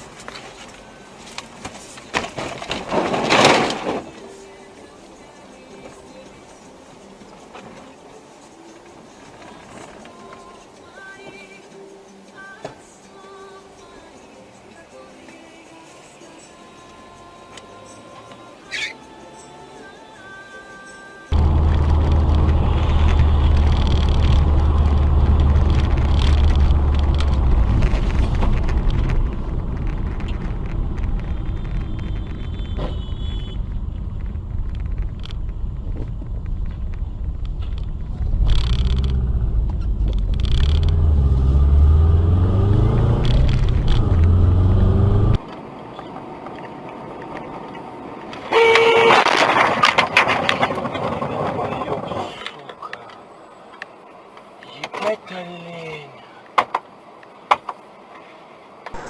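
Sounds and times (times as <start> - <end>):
car engine and tyres rumbling: 21.3 - 55.3, 56.1 - 59.0
car horn: 22.4 - 23.7, 31.3 - 33.9, 48.4 - 49.4.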